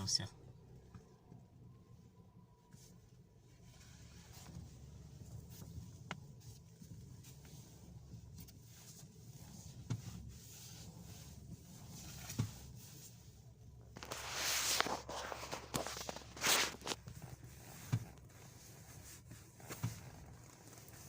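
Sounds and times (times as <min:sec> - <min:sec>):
rushing rustling noise: 0:13.9 - 0:21.0.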